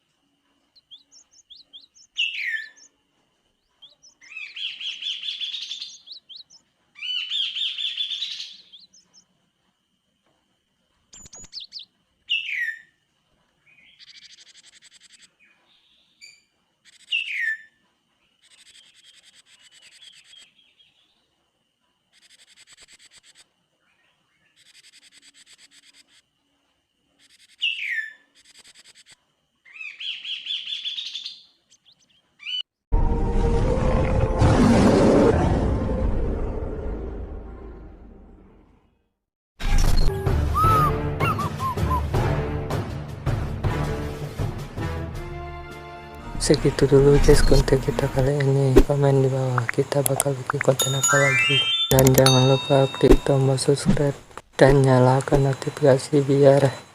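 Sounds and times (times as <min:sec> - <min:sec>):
bird singing whistles and trills: 0:00.8 - 0:02.9, 0:29.7 - 0:32.6, 0:40.0 - 0:42.1, 0:50.8 - 0:53.5
faint steady high tone: 0:50.0 - 0:56.9.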